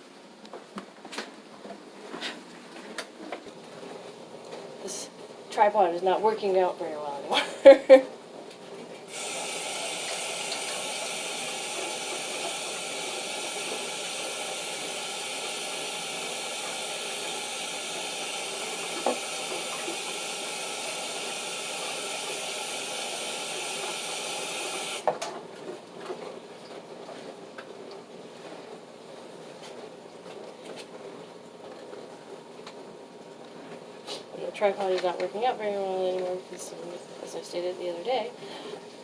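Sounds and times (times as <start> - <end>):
tap water running into sink: 9.1 - 25.2
tap shutting off clunk: 18.9 - 20.1.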